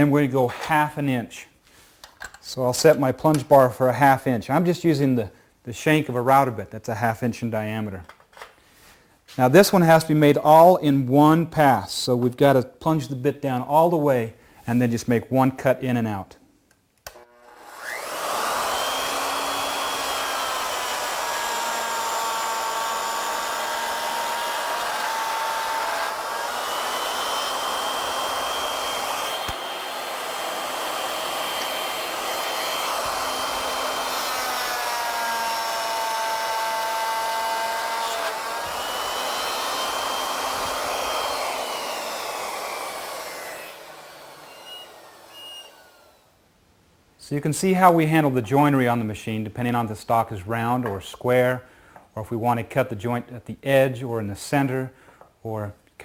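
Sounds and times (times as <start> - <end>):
router whining while cutting wood: 17.1 - 46.3.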